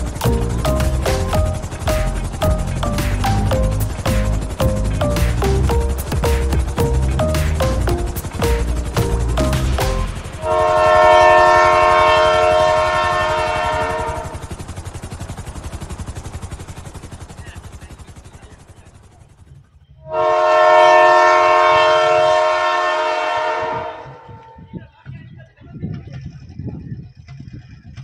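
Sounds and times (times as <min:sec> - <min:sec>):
fast rhythmic beating: 0:00.0 - 0:11.1
train horn blasts: 0:10.4 - 0:14.5, 0:20.0 - 0:24.7.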